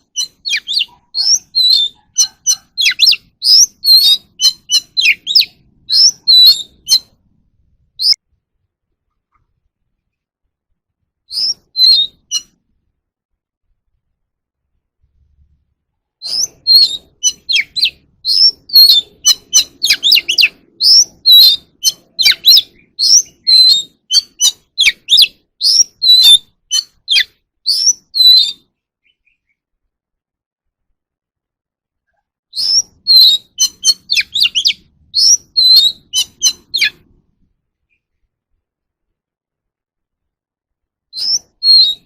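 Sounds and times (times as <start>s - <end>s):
bird singing whistled notes: 0.0s - 7.2s, 8.0s - 8.2s, 11.3s - 12.6s, 16.2s - 29.6s, 32.5s - 37.0s, 41.1s - 42.0s.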